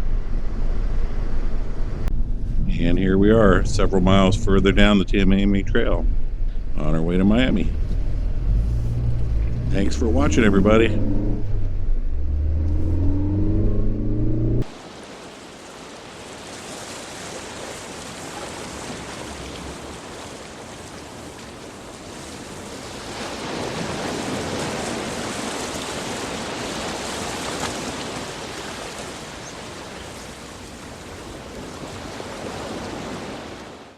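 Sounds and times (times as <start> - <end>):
car road rumble: 0.0 - 14.7
steady rushing noise: 0.0 - 15.6.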